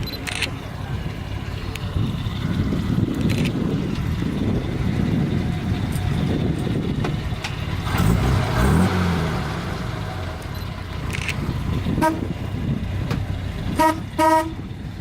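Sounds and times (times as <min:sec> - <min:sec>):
car engines driving past: 0:00.0 - 0:15.0
car engine revving: 0:01.1 - 0:14.6
car horn toot: 0:11.9 - 0:12.3, 0:13.7 - 0:14.6.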